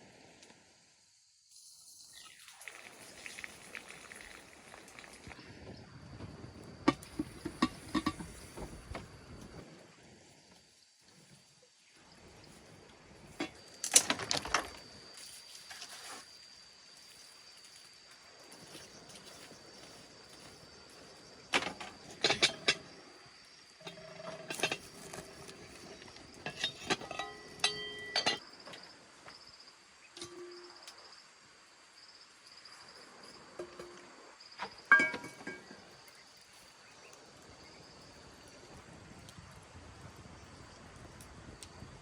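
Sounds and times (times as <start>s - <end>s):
insects chirping: 0.0s - 42.0s
objects knocking and clinking: 6.9s - 8.4s, 26.4s - 28.4s, 34.9s - 35.8s.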